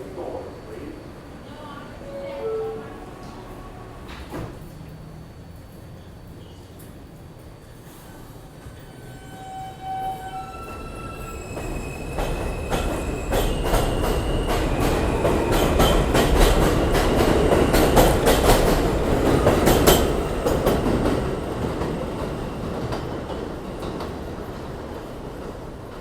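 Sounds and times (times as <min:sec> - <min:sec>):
subway train wheels clacking: 0:00.0 - 0:26.0.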